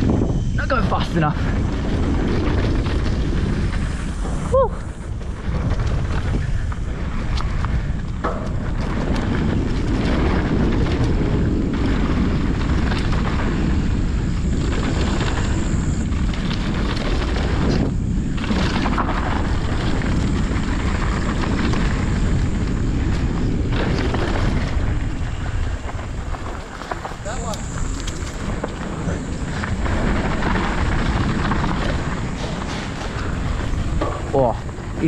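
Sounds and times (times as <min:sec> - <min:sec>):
bike riding on dirt: 0:00.0 - 0:35.0
wind roaring over microphone: 0:00.0 - 0:35.0.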